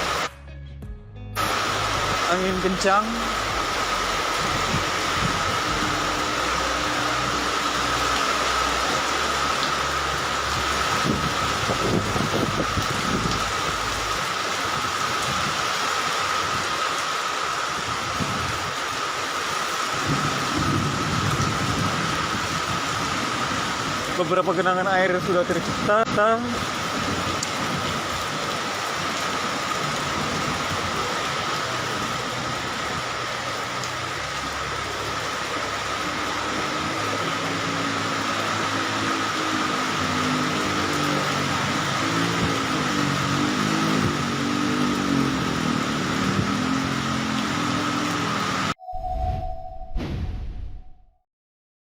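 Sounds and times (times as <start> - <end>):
heavy rain pouring: 0.0 - 0.3, 1.4 - 48.8
low tones: 0.9 - 14.2, 48.7 - 51.2
low rumble: 0.9 - 14.3, 48.8 - 51.2.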